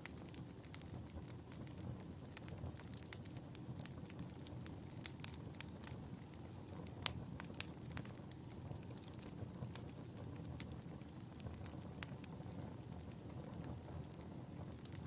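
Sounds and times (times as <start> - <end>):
fire crackling and popping: 0.0 - 15.0
fire flames rumbling: 0.0 - 15.0.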